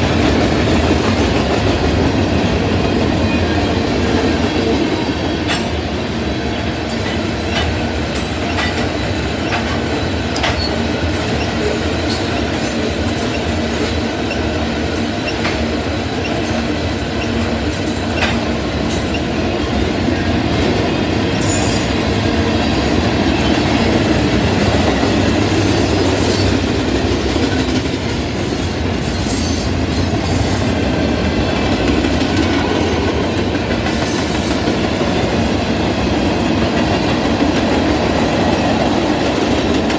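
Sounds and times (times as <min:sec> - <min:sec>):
train wheels rumbling on rails: 0:00.0 - 0:39.9
clanks and clicks: 0:07.0 - 0:11.6.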